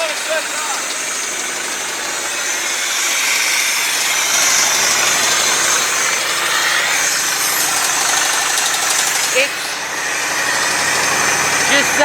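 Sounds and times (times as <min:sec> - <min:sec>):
truck engine idling roughly: 0:00.0 - 0:12.0.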